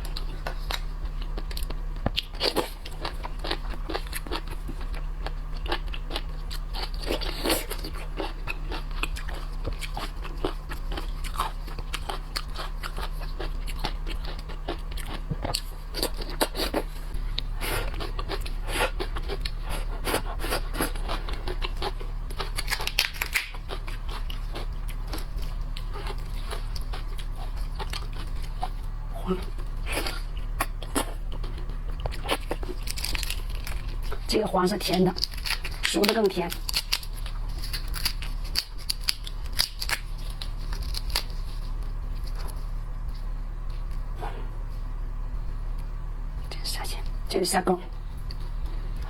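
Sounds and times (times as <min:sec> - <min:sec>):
crunching and chewing: 0:00.0 - 0:45.0, 0:47.9 - 0:49.0
steady low hum: 0:00.0 - 0:49.0.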